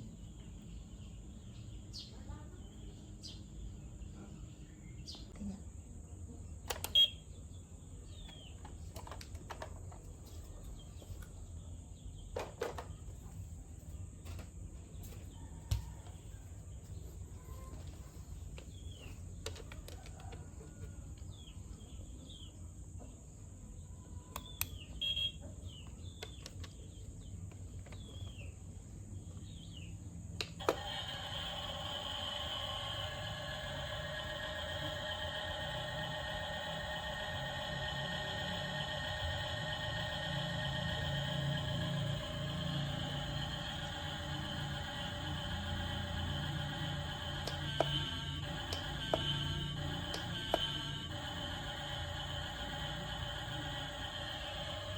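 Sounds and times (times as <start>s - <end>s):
sharp clicks: 45.6s - 52.4s.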